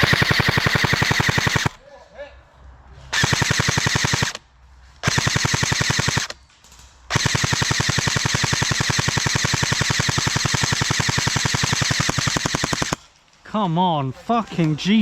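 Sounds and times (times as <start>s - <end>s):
airsoft rifle firing full-auto: 0.0s - 1.8s, 3.1s - 4.4s, 5.0s - 6.4s, 7.1s - 13.0s.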